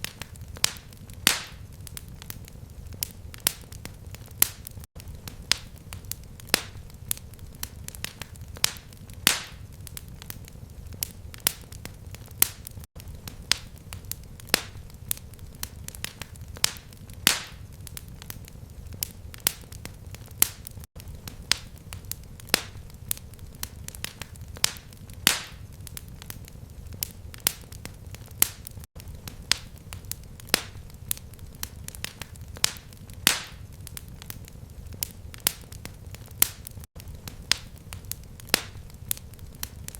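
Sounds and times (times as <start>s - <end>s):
fire crackling and popping: 0.0s - 39.9s
low rumble of flame: 0.0s - 39.9s.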